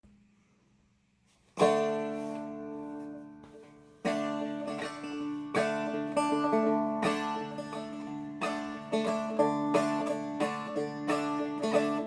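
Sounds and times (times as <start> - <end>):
dulcimer notes and chords: 4.1 - 12.0.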